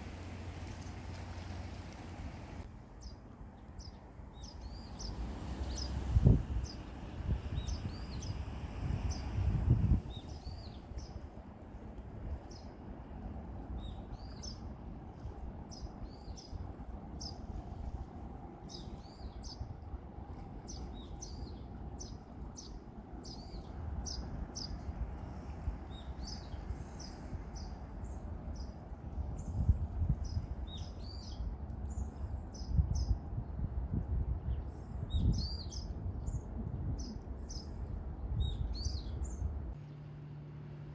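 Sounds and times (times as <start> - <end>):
low outdoor rumble: 0.0 - 40.9
small birds chirping: 0.6 - 6.0, 7.5 - 9.4, 10.0 - 11.3, 20.6 - 33.6, 34.4 - 39.5.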